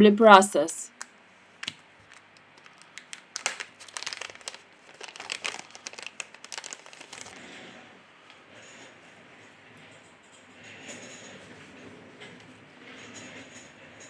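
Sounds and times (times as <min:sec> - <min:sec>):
plastic film crinkling: 0:00.9 - 0:07.7.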